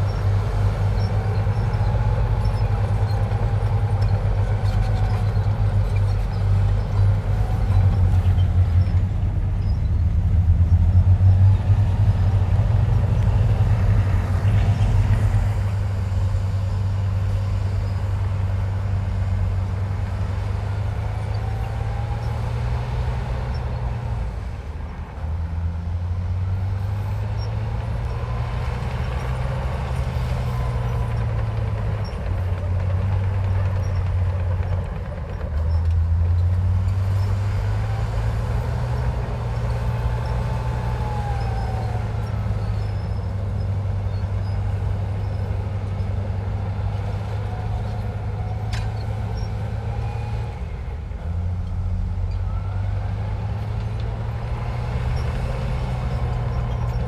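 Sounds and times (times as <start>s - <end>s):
heavy diesel machinery running: 0.0s - 57.0s
faint squeals: 35.6s - 50.6s.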